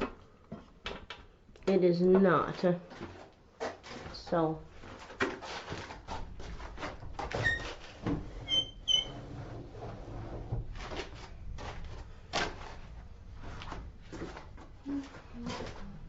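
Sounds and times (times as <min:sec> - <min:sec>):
knocks and clatter of handling: 0:00.0 - 0:08.4
short high squeaks: 0:08.5 - 0:09.2.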